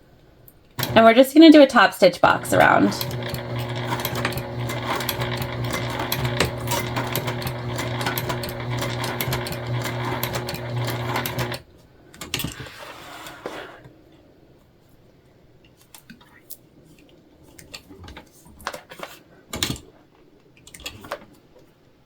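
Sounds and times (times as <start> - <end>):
sewing machine stitching: 0.8 - 1.3, 2.2 - 11.6.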